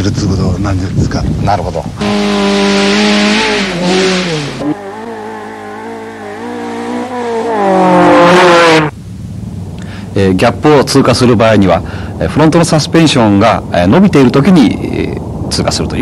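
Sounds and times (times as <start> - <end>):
car engine revving hard: 2.0 - 8.9.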